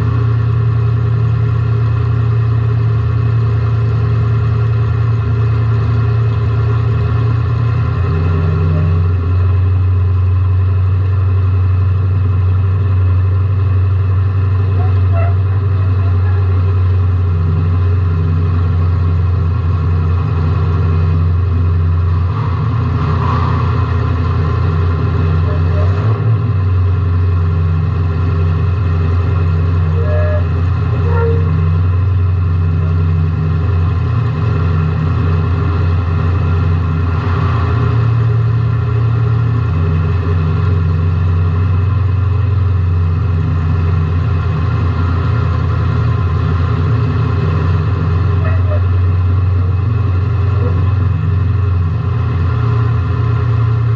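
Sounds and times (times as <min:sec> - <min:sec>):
car engine running: 0:00.0 - 0:53.9.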